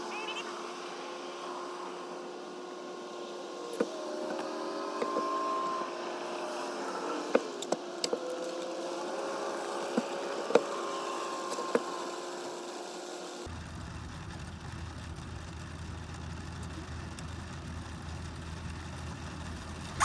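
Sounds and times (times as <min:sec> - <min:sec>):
boat motor humming: 0:00.0 - 0:13.5
knocks and clicks on boat: 0:03.7 - 0:12.1.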